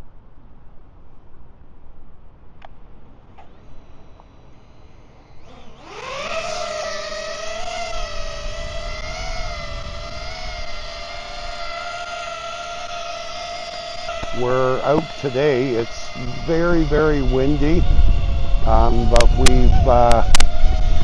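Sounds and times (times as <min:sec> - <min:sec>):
drone propeller whine: 0:02.0 - 0:21.0
wind rumble on microphone: 0:07.5 - 0:11.8, 0:14.2 - 0:21.0.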